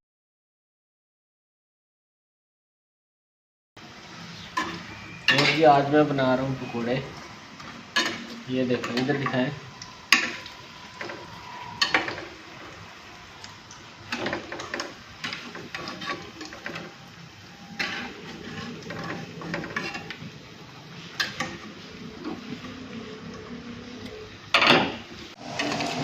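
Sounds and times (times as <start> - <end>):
food frying in oil: 3.8 - 26.0
metal utensil scraping a pan: 4.5 - 7.0, 7.6 - 22.8.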